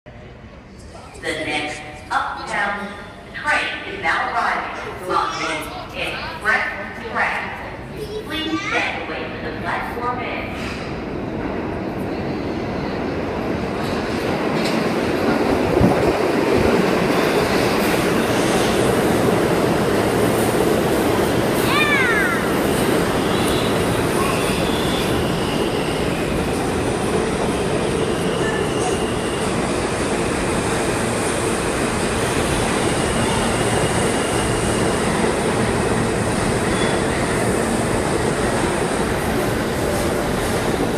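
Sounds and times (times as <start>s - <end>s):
subway train rumble: 0.0s - 40.9s
faint high wheel squeal: 36.7s - 37.2s.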